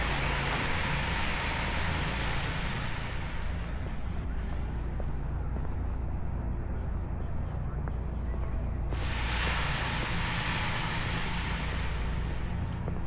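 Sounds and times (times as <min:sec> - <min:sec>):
vehicle passing with hiss: 0:00.0 - 0:05.1, 0:08.9 - 0:13.0
steady low traffic rumble: 0:00.0 - 0:13.0.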